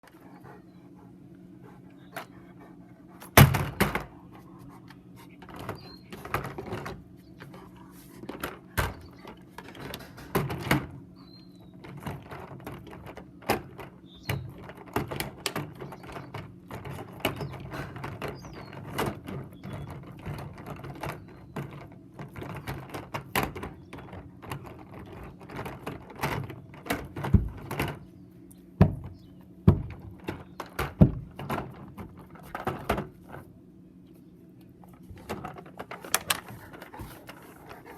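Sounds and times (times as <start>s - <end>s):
low steady hum: 0.0s - 37.9s
dog chewing a toy truck: 35.3s - 37.9s.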